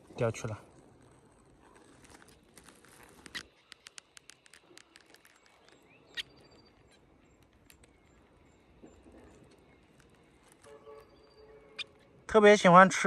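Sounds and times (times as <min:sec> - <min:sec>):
bird pecking in grass: 0:01.0 - 0:12.0
high bird chirps: 0:03.3 - 0:12.3.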